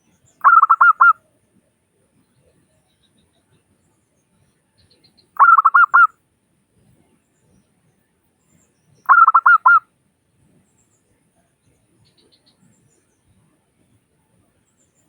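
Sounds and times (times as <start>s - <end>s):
dove cooing: 0.4s - 1.1s, 5.4s - 6.1s, 9.1s - 9.8s.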